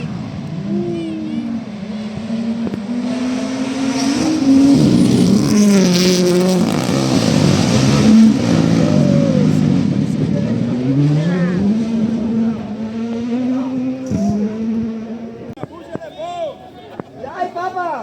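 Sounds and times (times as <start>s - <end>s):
rally car engine revving: 0.0s - 15.6s
rushing noise of car passing: 0.0s - 15.6s.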